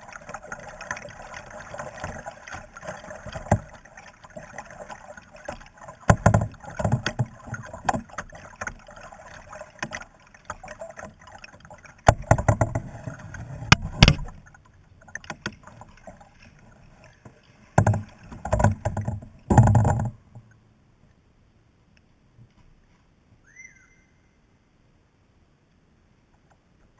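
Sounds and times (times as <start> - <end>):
paddle knocking against hull: 0.0 - 16.3, 17.3 - 20.5
paddle strokes splashing water: 0.0 - 20.4.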